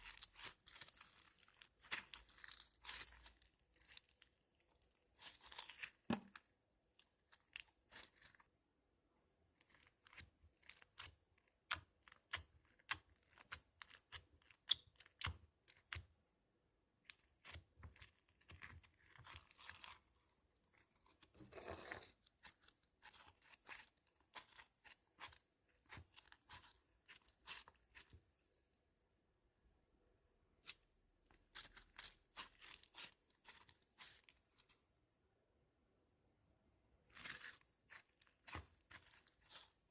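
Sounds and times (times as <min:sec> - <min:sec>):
crunchy slime crackling and popping: 0:00.0 - 0:06.5, 0:09.5 - 0:16.1, 0:17.0 - 0:21.4, 0:22.2 - 0:28.3, 0:30.6 - 0:34.7, 0:37.1 - 0:39.9.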